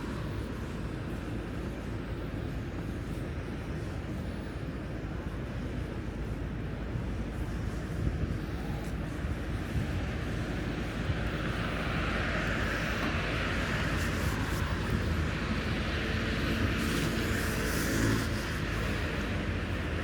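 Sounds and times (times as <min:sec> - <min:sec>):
traffic low rumble: 0:00.0 - 0:20.0
passing vehicle: 0:09.5 - 0:20.0.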